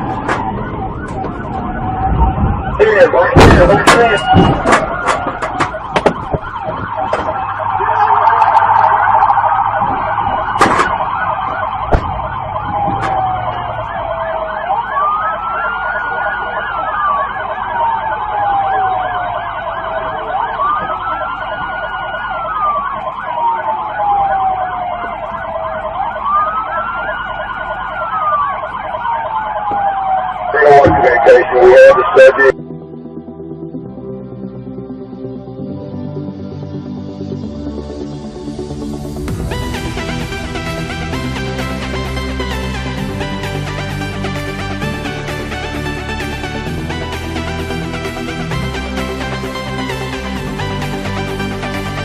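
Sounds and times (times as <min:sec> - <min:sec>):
warbling siren tone: 0:00.0 - 0:33.8
police siren wailing: 0:00.0 - 0:52.0
sharp knocks: 0:03.4 - 0:07.4, 0:11.9 - 0:13.2.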